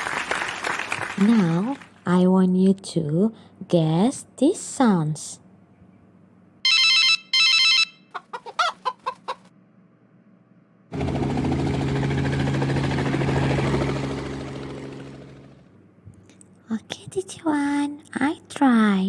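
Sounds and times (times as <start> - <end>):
telephone ringing: 6.6 - 8.1
hen clucking: 8.1 - 9.5
helicopter running: 10.9 - 15.8.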